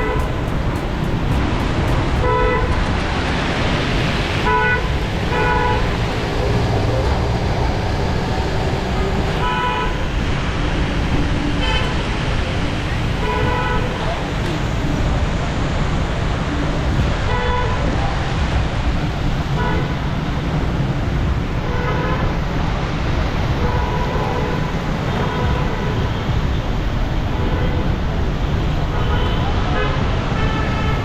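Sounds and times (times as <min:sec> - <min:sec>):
traffic low rumble: 0:00.0 - 0:31.0
vehicle horn toots: 0:01.4 - 0:02.9, 0:04.4 - 0:05.9.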